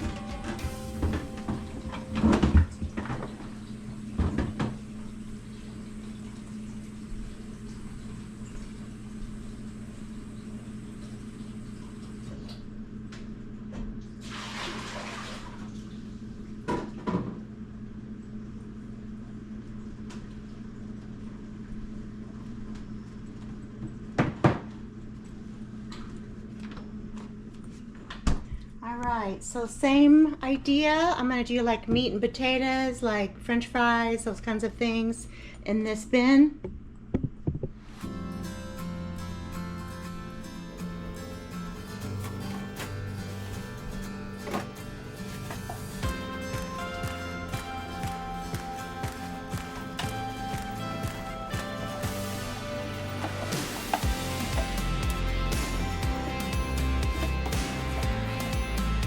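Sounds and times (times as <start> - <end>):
plastic bins clunking: 0.0 - 4.9, 42.1 - 46.4, 49.6 - 59.0
refrigerator hum: 0.0 - 59.0.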